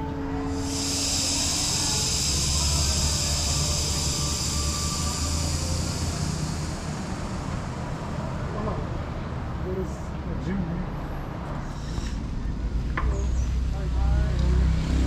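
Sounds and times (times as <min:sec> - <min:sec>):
high-pitched hiss: 0:00.0 - 0:09.0
low vehicle rumble: 0:00.0 - 0:15.0.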